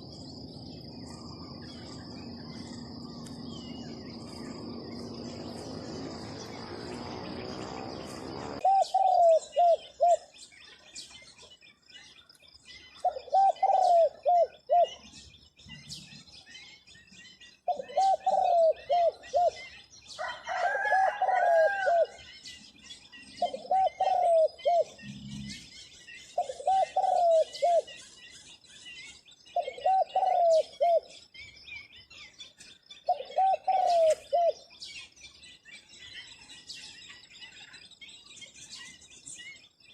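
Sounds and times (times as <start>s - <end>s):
insects trilling: 0.0s - 10.3s
dove cooing: 1.0s - 10.4s, 13.0s - 15.0s, 17.7s - 19.7s, 20.5s - 22.2s, 23.4s - 25.6s, 26.4s - 28.0s, 29.6s - 31.1s, 33.1s - 34.6s.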